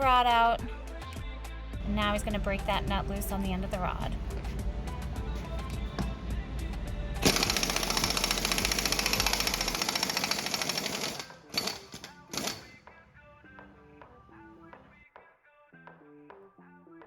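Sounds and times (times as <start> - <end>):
background music: 0.0 - 17.0
impact wrench hammering: 7.2 - 12.8.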